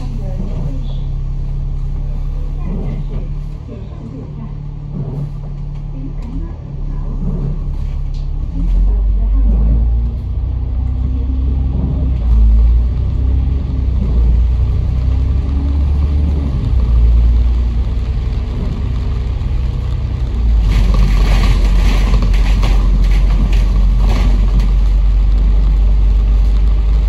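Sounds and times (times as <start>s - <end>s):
bus engine rumbling: 0.0s - 27.0s.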